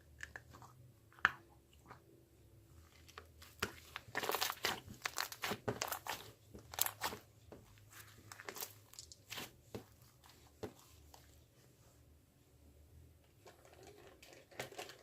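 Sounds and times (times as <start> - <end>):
crinkling handling noises: 2.8 - 11.6.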